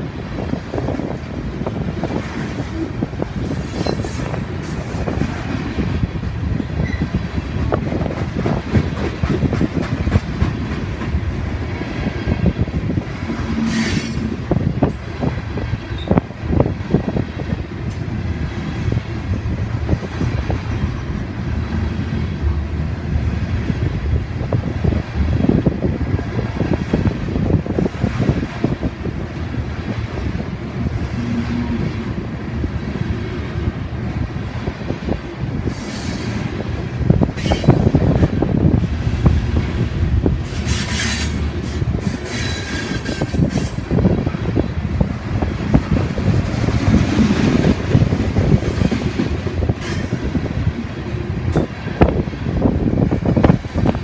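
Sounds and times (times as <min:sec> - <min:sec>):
train wheels rumbling on rails: 0:00.0 - 0:54.0
high wheel squeal: 0:03.4 - 0:04.9, 0:40.5 - 0:44.0.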